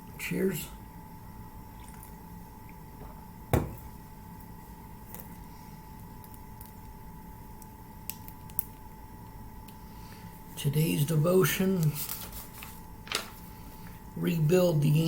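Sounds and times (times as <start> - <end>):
faint steady hum: 0.0 - 15.0
mug knocking on surface: 3.5 - 3.9.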